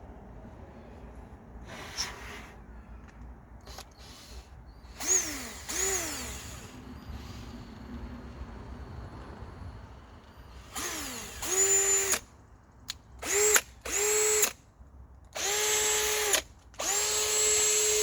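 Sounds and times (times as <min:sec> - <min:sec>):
cordless drill whining: 0:03.6 - 0:08.0, 0:10.2 - 0:12.3, 0:13.2 - 0:14.6, 0:15.4 - 0:18.0.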